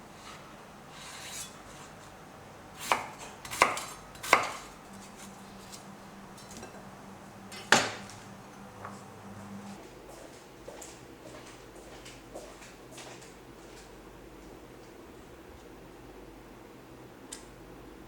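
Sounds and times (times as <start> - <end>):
low steady hum: 0.0 - 10.1
knife chopping on cutting board: 2.8 - 6.7, 7.5 - 8.1.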